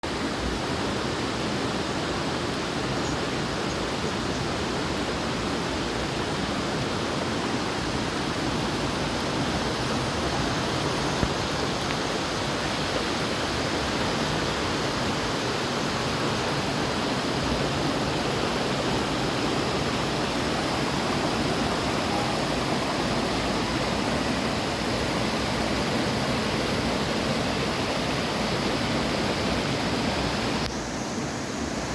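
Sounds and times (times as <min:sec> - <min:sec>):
rushing water: 0:00.0 - 0:31.9.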